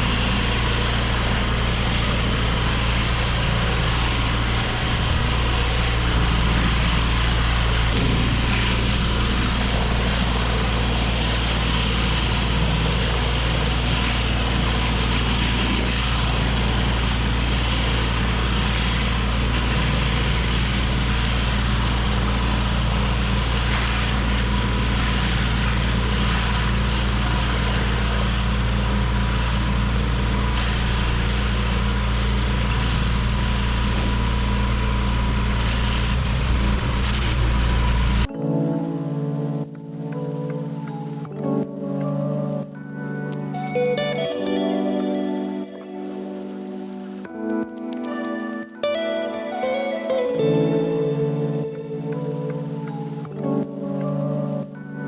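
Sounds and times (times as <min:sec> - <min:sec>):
high-pressure water spraying: 0:00.0 - 0:38.3
pressure washer engine running: 0:00.0 - 0:38.3.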